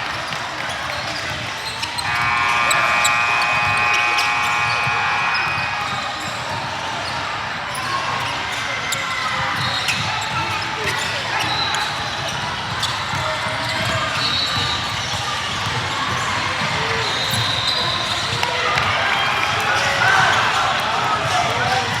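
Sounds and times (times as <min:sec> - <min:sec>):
sports hall din: 0:00.0 - 0:22.0
shoe squeaks: 0:01.0 - 0:08.0
electronic buzzer tone: 0:02.0 - 0:06.5.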